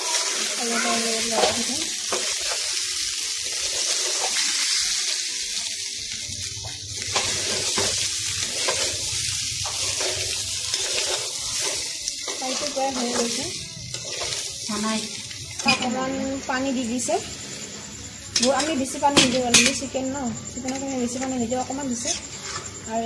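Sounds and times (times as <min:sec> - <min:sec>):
chicken sizzling in a pan: 0:00.0 - 0:23.0
spatula scraping a metal pan: 0:07.1 - 0:14.6, 0:21.9 - 0:22.8.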